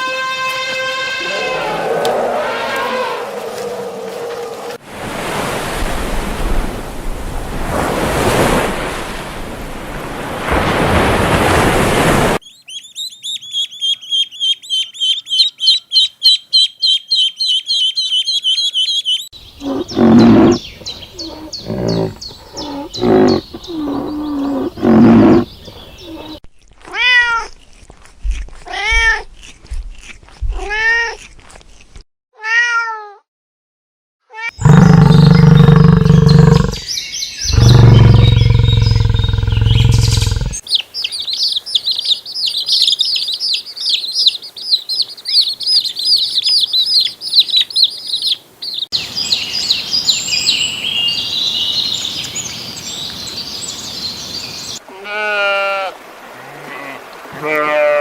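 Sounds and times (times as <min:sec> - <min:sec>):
harsh noisy animal call: 0:01.2 - 0:04.8, 0:34.5 - 0:36.9, 0:37.5 - 0:40.6
cat meowing: 0:26.9 - 0:27.5, 0:28.7 - 0:29.3, 0:30.5 - 0:31.2, 0:32.4 - 0:33.2.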